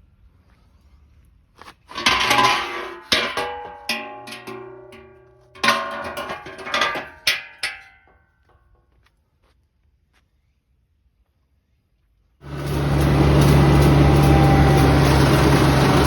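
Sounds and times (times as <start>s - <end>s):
sharp clattering strikes with ringing: 2.0s - 8.2s.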